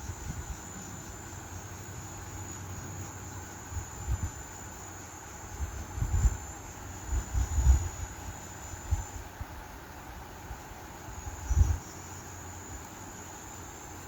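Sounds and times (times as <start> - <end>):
insects trilling: 0.0 - 14.0
wind buffeting microphone: 5.5 - 9.6, 11.2 - 11.9.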